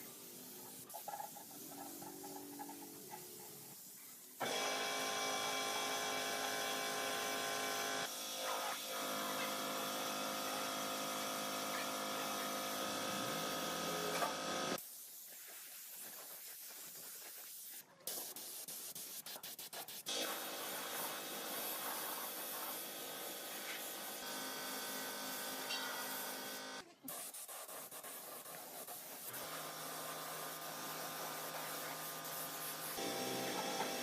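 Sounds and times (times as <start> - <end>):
power tool whining: 33.0 - 34.0.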